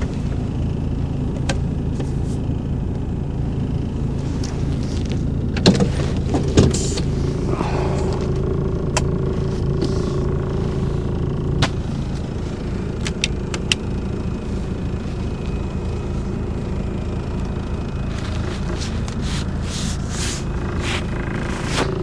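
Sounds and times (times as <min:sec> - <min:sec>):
truck engine rumbling: 0:00.0 - 0:22.0
rustling: 0:17.3 - 0:22.0.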